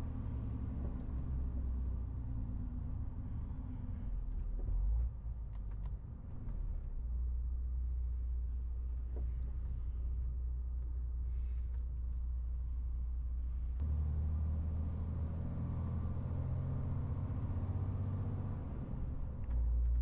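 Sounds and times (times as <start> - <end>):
truck diesel engine droning: 13.0 - 19.5.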